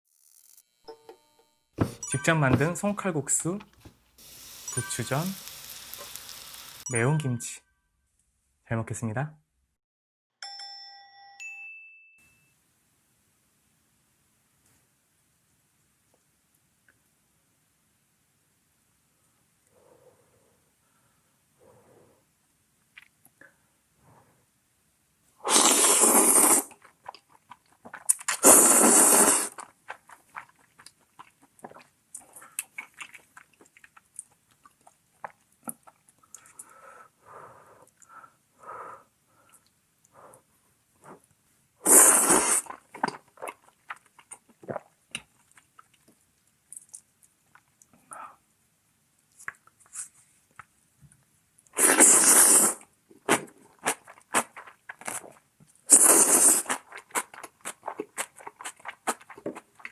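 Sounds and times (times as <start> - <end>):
quiet chewing: 3.7 - 6.8, 26.7 - 28.4, 29.5 - 37.0, 42.6 - 48.3, 52.8 - 59.9
loud slurping of noodles: 25.4 - 26.9, 28.3 - 29.7, 41.8 - 42.9, 51.8 - 55.2, 55.9 - 59.8
wet mouth clicks: 51.7 - 59.9.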